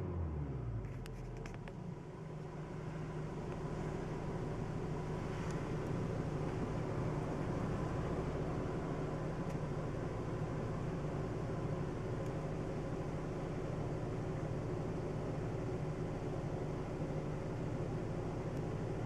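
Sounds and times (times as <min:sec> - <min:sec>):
car engine humming: 0:00.0 - 0:16.3.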